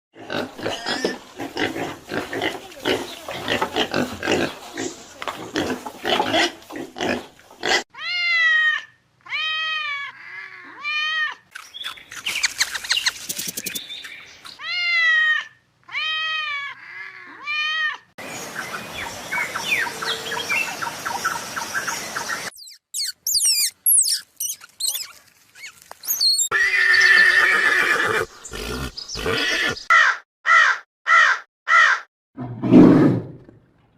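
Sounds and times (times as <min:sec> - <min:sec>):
repeated arching calls: 0:11.7 - 0:14.6, 0:18.5 - 0:32.0
animal calls: 0:22.2 - 0:32.0.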